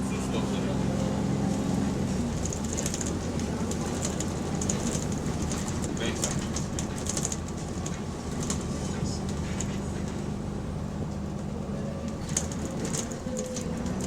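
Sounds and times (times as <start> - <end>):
bus diesel engine drone: 0.0 - 14.0.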